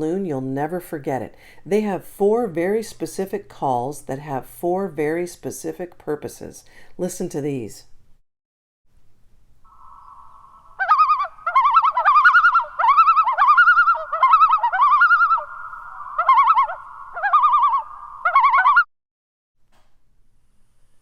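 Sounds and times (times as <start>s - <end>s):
loon calling: 9.7s - 18.9s.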